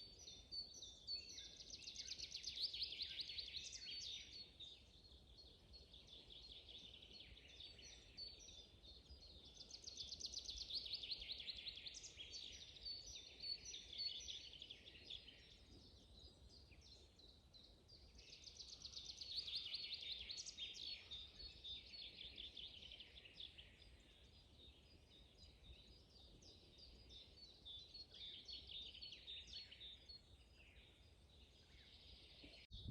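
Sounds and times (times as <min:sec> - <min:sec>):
songbirds chirping and trilling: 0:00.0 - 0:32.9.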